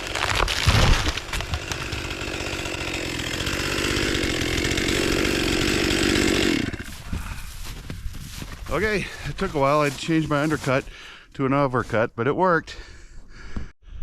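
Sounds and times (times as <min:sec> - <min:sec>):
chainsaw running at high revs: 0:00.0 - 0:08.4.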